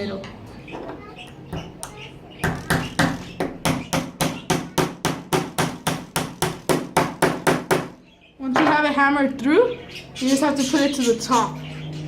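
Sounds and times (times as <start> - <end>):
hammer striking nail into wood: 2.4 - 8.0.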